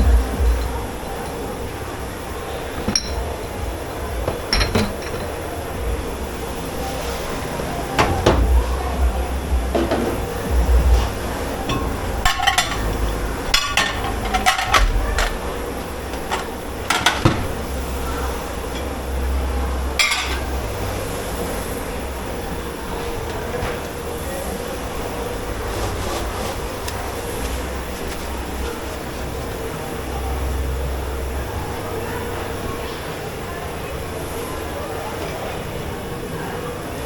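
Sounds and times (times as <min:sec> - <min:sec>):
low machine rumble: 0:00.0 - 0:36.5
dishes and pots clinking: 0:02.8 - 0:03.6, 0:04.2 - 0:05.6, 0:09.7 - 0:15.5, 0:16.1 - 0:17.6, 0:20.0 - 0:20.7.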